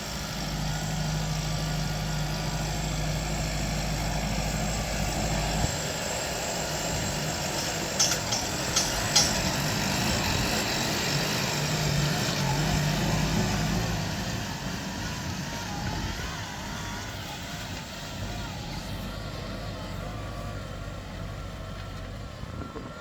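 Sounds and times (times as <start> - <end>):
tractor diesel engine running: 0.0 - 23.0
sharp knocks: 7.6 - 9.6.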